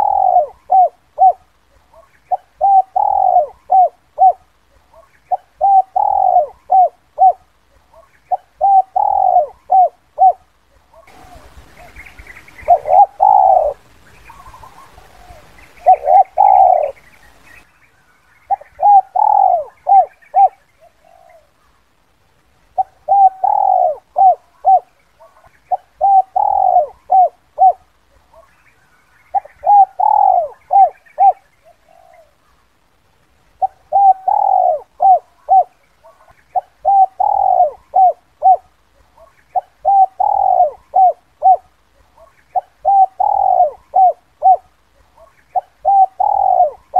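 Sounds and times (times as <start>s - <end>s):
dove cooing: 0.0s - 17.4s, 18.5s - 21.7s, 22.7s - 28.6s, 29.3s - 32.6s, 33.5s - 46.9s.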